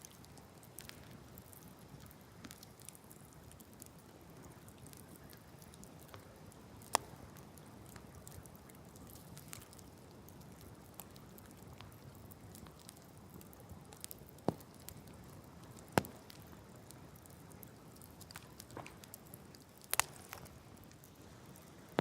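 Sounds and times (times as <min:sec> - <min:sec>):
campfire crackling: 0:00.0 - 0:22.0
sharp fire pops: 0:14.4 - 0:15.0, 0:15.6 - 0:16.6, 0:18.2 - 0:20.6.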